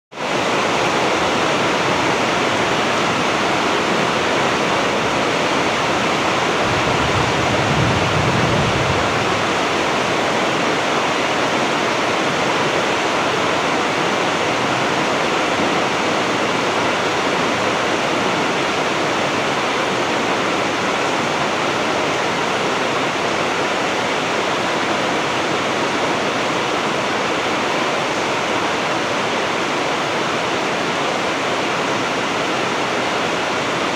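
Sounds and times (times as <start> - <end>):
heavy rain downpour: 0.1 - 33.9
low rumble: 6.3 - 10.2.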